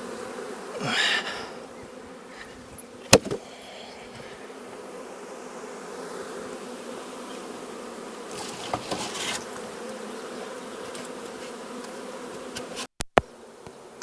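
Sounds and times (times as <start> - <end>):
bee swarm buzzing: 0.0 - 14.0.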